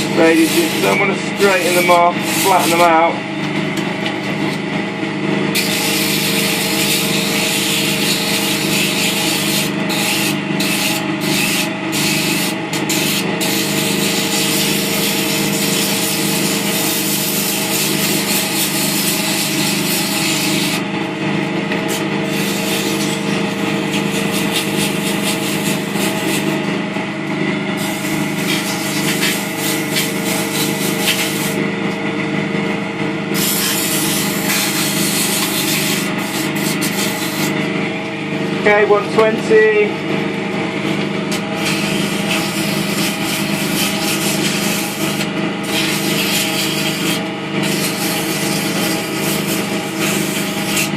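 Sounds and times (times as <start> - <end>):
sandpaper hissing on spinning wood: 0.0 - 3.1, 5.6 - 20.8, 22.2 - 26.6, 27.8 - 31.6, 33.3 - 37.6, 41.6 - 50.9
lathe humming: 0.0 - 50.9.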